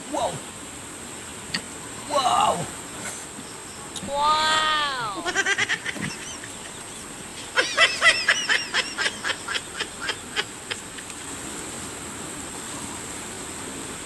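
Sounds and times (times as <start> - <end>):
insects buzzing: 0.0 - 14.0.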